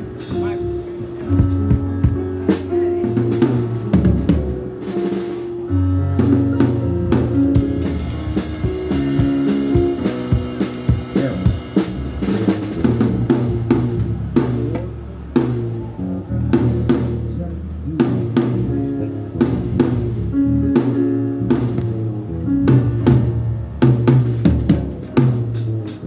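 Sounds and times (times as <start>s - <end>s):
cymbals washing: 0.0s - 1.7s, 6.8s - 15.8s
bass and guitar notes: 0.0s - 26.0s
kick drum: 1.4s - 2.4s
snare drum: 7.6s - 13.9s.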